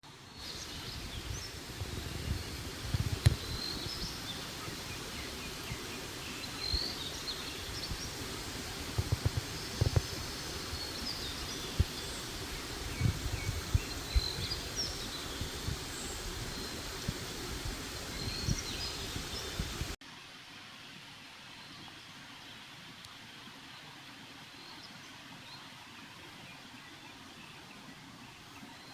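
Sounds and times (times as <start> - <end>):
steady outdoor hiss: 0.0 - 28.9
birds chirping: 0.2 - 20.0.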